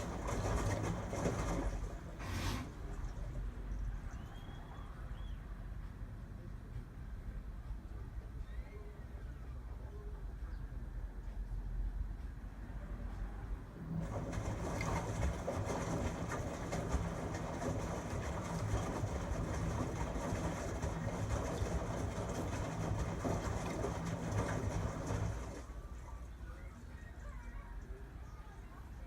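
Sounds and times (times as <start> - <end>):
washing machine drum tumbling: 0.0 - 3.0, 13.8 - 25.8
washing machine motor humming: 0.0 - 4.3, 13.8 - 26.3.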